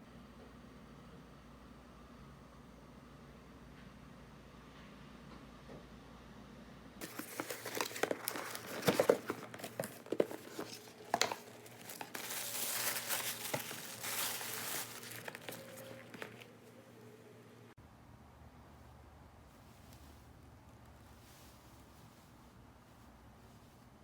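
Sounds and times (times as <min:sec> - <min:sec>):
packaging crinkling and rustling: 0:07.0 - 0:16.8.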